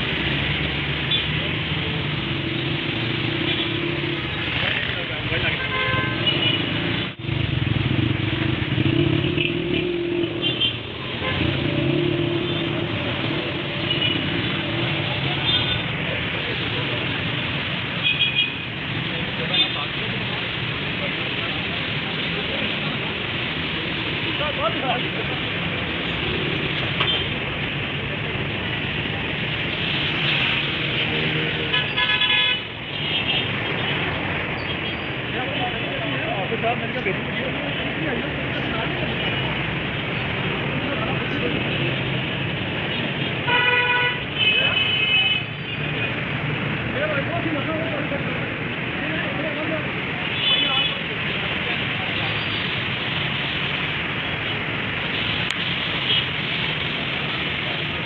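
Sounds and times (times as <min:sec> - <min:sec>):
street traffic: 0:00.0 - 0:58.0
vehicle horn tooting: 0:43.5 - 0:45.4.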